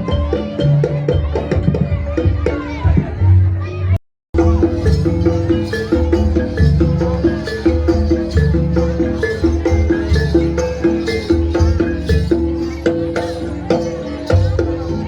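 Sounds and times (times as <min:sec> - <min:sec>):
metallophone notes: 0:04.4 - 0:15.0
steady drum beat: 0:04.4 - 0:15.0.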